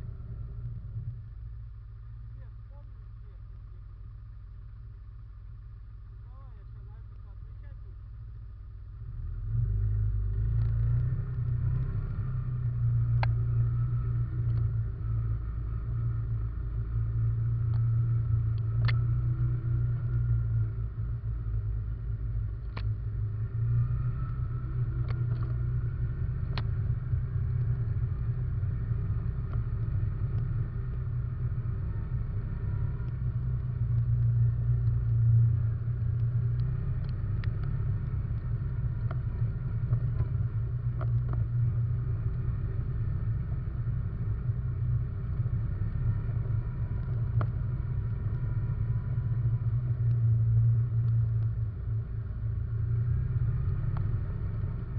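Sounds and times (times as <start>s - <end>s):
atv engine running: 0.0s - 54.9s
sharp clicks and knocks: 18.5s - 19.0s.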